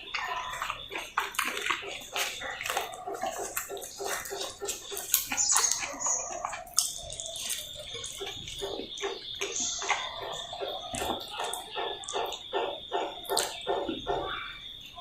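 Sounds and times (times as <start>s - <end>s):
chewing and wet mouth sounds: 0.0s - 14.4s.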